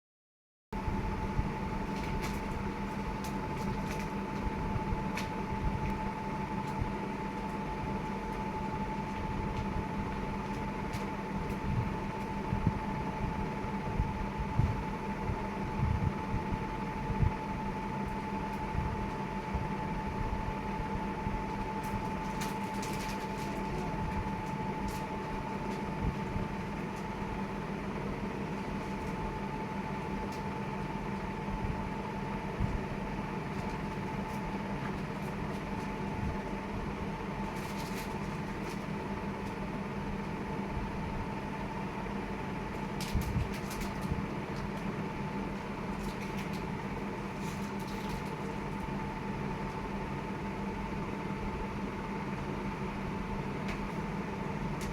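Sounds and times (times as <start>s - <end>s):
steady mechanical hum: 0.8s - 54.9s.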